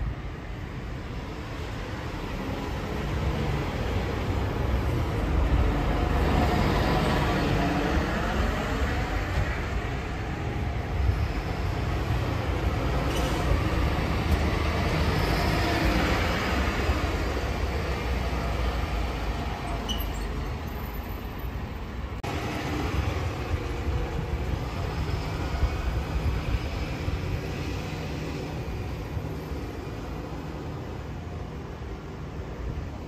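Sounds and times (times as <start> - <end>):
electric train rumbling: 0.0 - 33.0.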